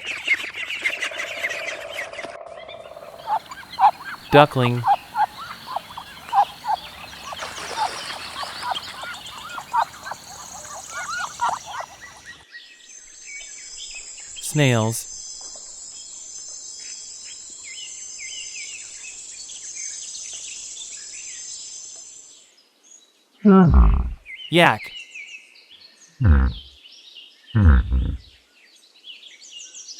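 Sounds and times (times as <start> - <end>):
ducklings peeping: 3.0 - 12.4
faint chirps: 3.0 - 12.4.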